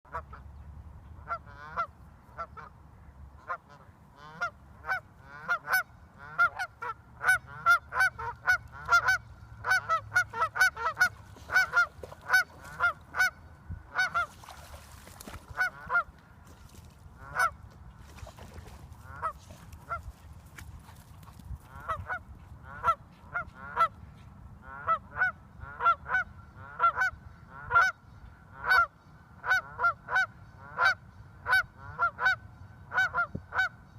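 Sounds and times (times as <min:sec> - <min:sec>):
geese honking: 0:03.4 - 0:14.3, 0:15.5 - 0:16.2, 0:17.2 - 0:17.6, 0:19.0 - 0:20.1, 0:21.7 - 0:24.0, 0:24.6 - 0:28.0, 0:28.6 - 0:33.7.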